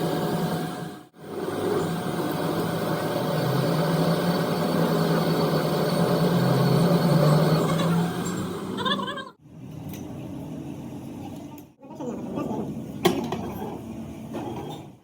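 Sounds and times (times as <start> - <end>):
machine motor humming: 0.0 - 9.0.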